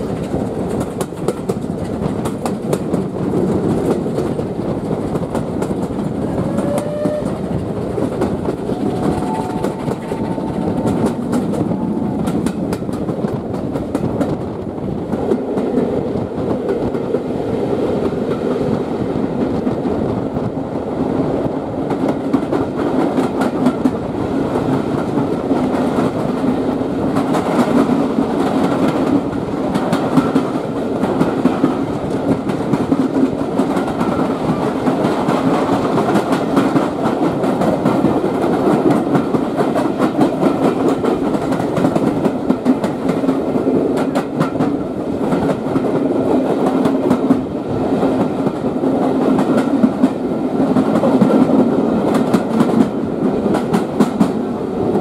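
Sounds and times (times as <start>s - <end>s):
wheels clacking over rail joints: 0.0s - 17.3s, 21.8s - 55.0s
train rumbling on track: 0.0s - 55.0s.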